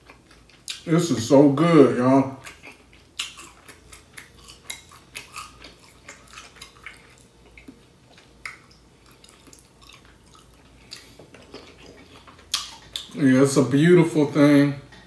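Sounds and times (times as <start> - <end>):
person chewing wetly: 0.0 - 0.9, 2.3 - 13.2.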